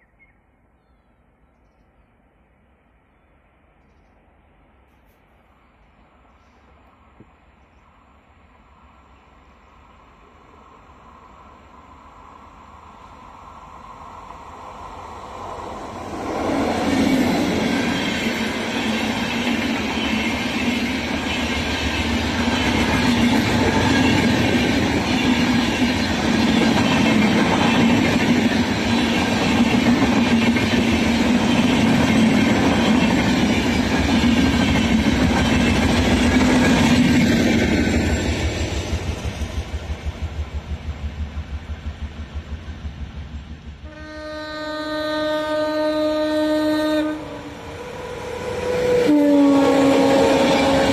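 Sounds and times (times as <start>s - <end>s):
train wheels rushing on rails: 8.9s - 44.1s, 47.1s - 50.9s.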